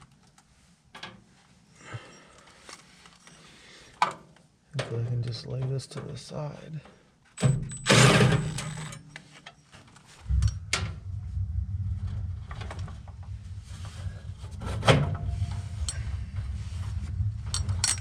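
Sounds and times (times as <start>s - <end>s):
clicks and knocks of metal parts: 7.4s - 10.6s, 17.5s - 18.0s
loud scraping rustle: 10.1s - 17.8s
low steady rumble: 10.2s - 18.0s.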